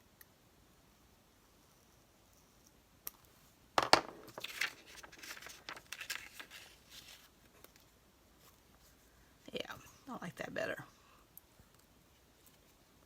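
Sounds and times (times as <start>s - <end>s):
paper rustling and crinkling: 4.0s - 9.0s.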